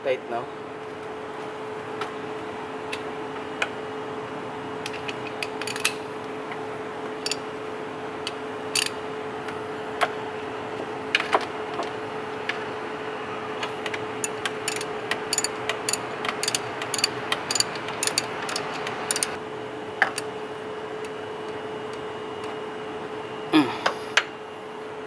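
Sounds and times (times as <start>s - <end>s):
faint steady hum: 2.3s - 25.0s
ratchet wrench clicking: 5.2s - 6.0s, 7.2s - 7.5s, 8.3s - 9.0s, 14.2s - 19.4s.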